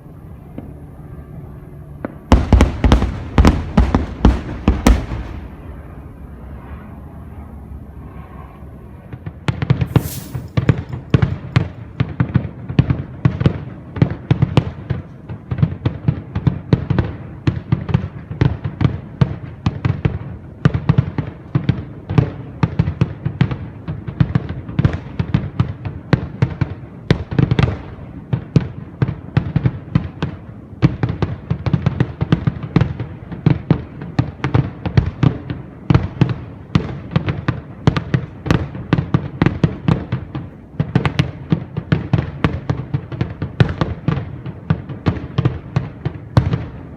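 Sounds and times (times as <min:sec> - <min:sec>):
fireworks bangs: 0:02.0 - 0:06.0, 0:09.2 - 0:13.6.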